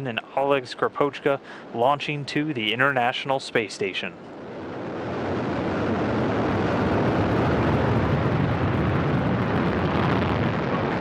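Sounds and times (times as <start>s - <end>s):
rocket engines rumbling: 0.0s - 11.0s.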